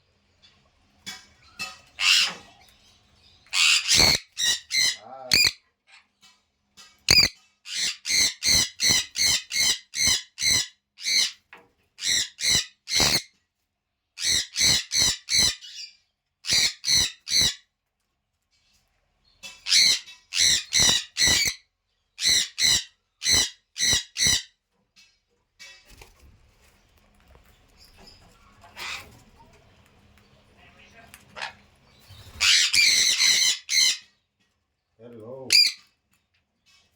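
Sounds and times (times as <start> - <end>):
parrot squawking: 1.6 - 2.6, 3.5 - 5.6, 7.1 - 11.4, 12.0 - 13.3, 14.2 - 17.6, 19.6 - 21.6, 22.2 - 24.5, 28.6 - 29.2, 31.3 - 34.1, 35.5 - 35.8.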